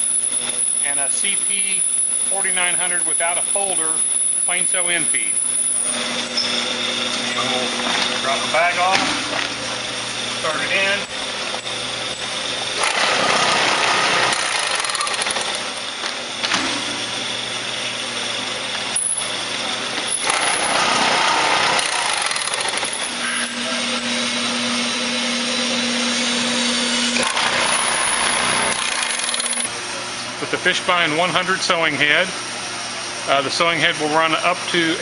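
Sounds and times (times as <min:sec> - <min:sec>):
bag sewing machine clatter: 0:12.8 - 0:15.6, 0:20.1 - 0:23.1, 0:27.2 - 0:29.7.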